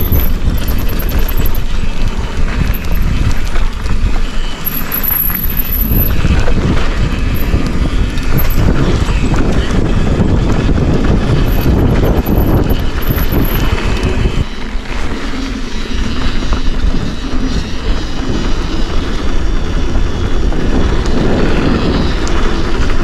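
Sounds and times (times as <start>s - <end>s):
bike knocks and rattles: 0.0s - 14.4s
wind rumble on microphone: 0.0s - 23.0s.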